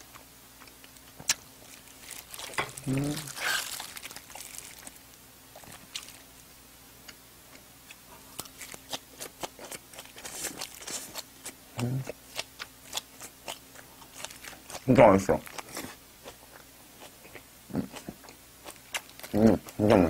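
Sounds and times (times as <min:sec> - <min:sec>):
person humming: 0:02.8 - 0:03.4.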